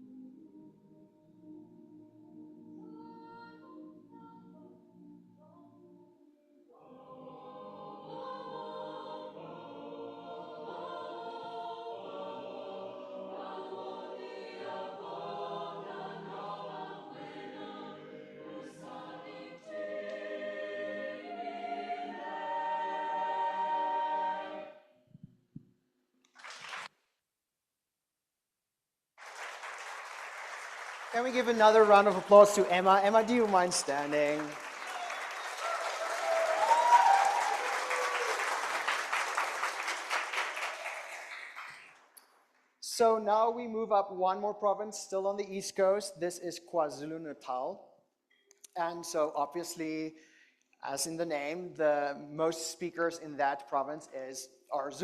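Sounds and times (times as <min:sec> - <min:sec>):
choir singing a cappella: 0:02.3 - 0:05.9, 0:06.6 - 0:24.8.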